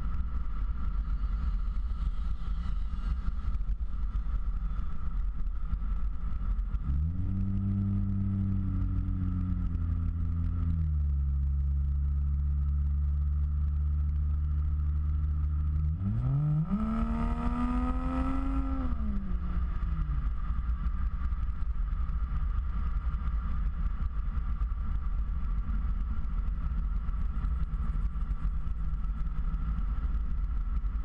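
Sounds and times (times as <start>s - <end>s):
car engine accelerating: 6.7s - 20.7s.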